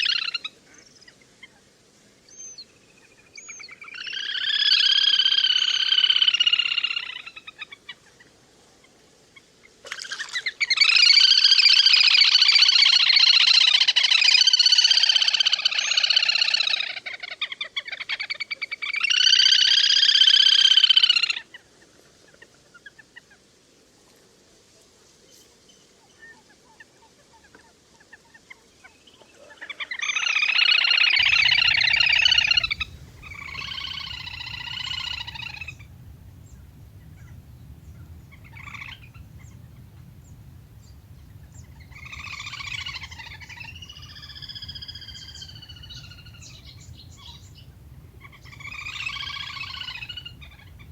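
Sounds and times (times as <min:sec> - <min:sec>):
ducks whistling calls: 0:30.2 - 0:50.9.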